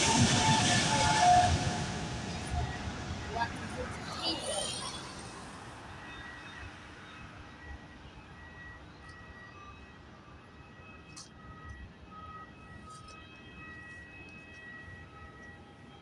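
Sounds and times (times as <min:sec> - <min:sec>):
thin high whine: 0:00.0 - 0:06.7
distant jet engines rumbling: 0:00.0 - 0:07.0.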